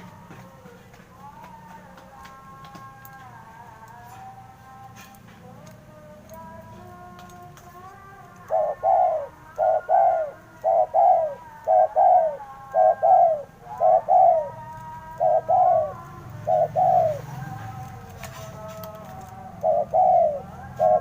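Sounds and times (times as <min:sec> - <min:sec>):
dove cooing: 0:07.8 - 0:21.0.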